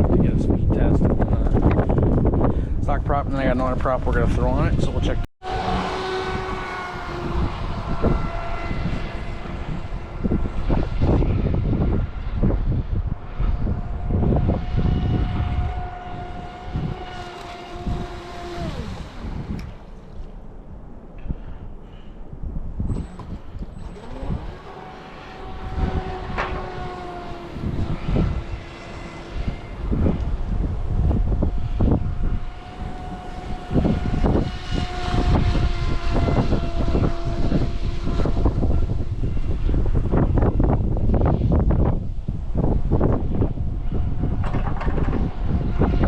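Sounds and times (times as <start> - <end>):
wind buffeting microphone: 0.0 - 46.0
toy boat motor whine: 5.4 - 12.1, 13.2 - 20.4, 23.0 - 41.2.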